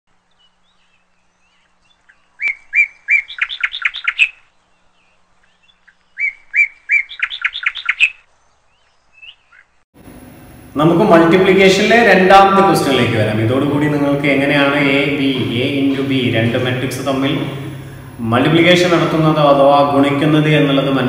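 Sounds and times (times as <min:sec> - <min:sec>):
songbird singing: 0:00.1 - 0:09.9.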